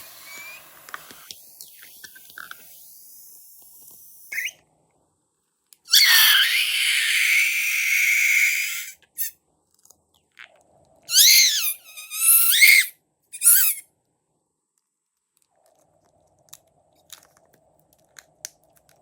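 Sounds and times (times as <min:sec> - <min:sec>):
short balloon squeaks: 0:04.4 - 0:04.6, 0:05.9 - 0:07.2, 0:11.1 - 0:13.8
air squealing out of balloon: 0:05.9 - 0:09.3, 0:11.1 - 0:13.8.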